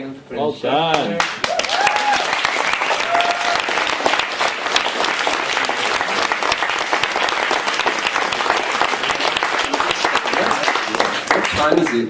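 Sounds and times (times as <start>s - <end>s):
audience applauding: 1.2s - 12.0s
person whooping: 1.5s - 3.8s.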